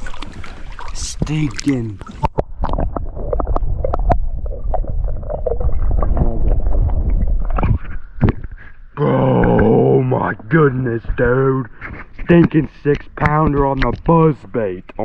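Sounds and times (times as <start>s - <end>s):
water sloshing and gurgling: 0.0s - 15.0s
low rumble: 2.4s - 8.3s.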